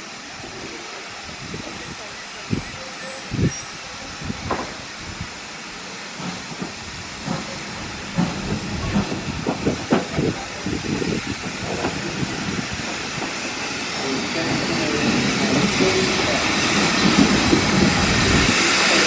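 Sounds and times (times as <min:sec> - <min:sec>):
steam hissing: 0:00.0 - 0:19.0
train knocking and clanking: 0:01.4 - 0:19.0.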